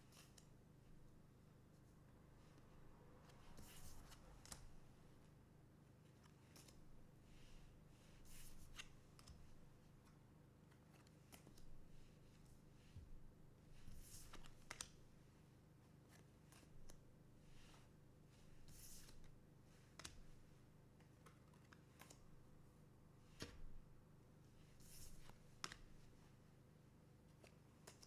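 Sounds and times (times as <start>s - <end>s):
cards swishing and clicking: 13.8s - 15.0s, 18.5s - 20.4s, 21.0s - 22.2s, 24.8s - 26.1s.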